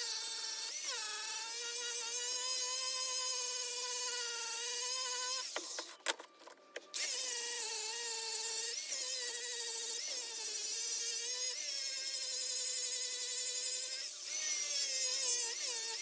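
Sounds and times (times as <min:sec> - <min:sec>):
power tool motor whining: 0:00.0 - 0:16.0
clicks: 0:05.5 - 0:06.9.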